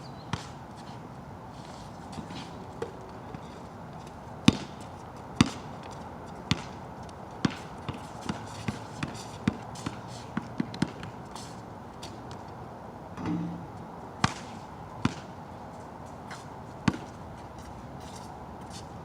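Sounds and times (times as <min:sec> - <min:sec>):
basketball dribbling on wet court: 0:04.5 - 0:06.8, 0:07.4 - 0:11.2, 0:16.8 - 0:17.1.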